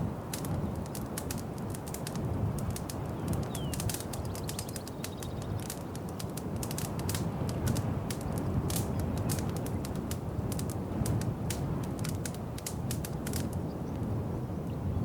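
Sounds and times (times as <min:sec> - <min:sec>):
wood fire crackling: 0:00.0 - 0:14.2.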